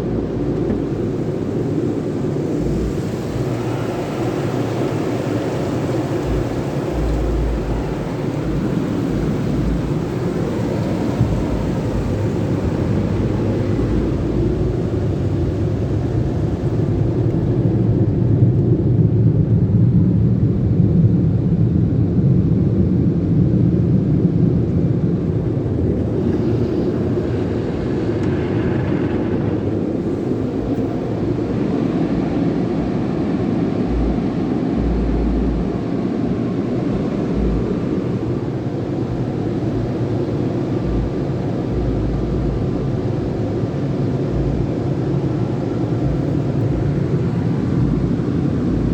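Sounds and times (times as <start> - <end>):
car wash machinery rumble: 0.0 - 19.3, 24.6 - 48.9
car wash hiss: 25.2 - 32.5.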